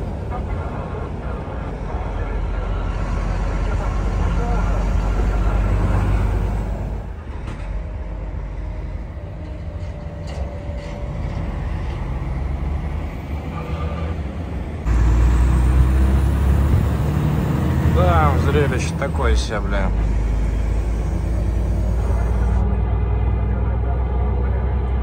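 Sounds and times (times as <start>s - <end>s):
truck engine and road noise: 0.0s - 25.0s.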